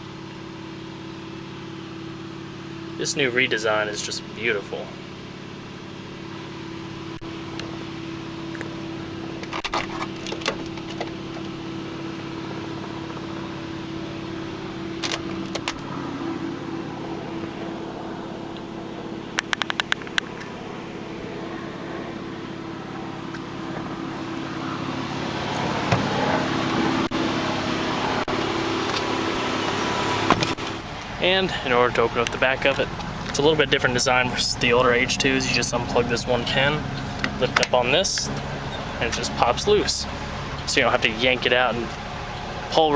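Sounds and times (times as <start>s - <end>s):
low mechanical hum: 0.0s - 42.9s.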